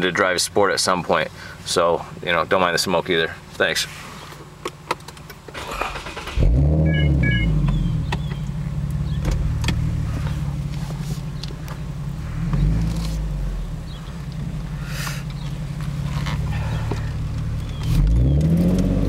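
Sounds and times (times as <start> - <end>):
car engine starting and idling: 0.0 - 19.0
short beeps: 6.8 - 7.6.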